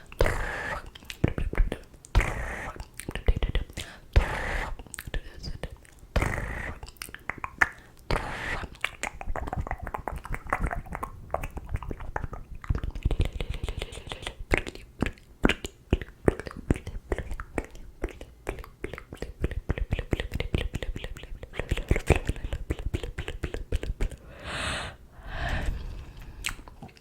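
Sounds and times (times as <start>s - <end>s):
wet mouth clicks and pops: 0.2s - 24.2s, 26.4s - 27.0s
breathy whisper-like hiss: 24.2s - 27.0s.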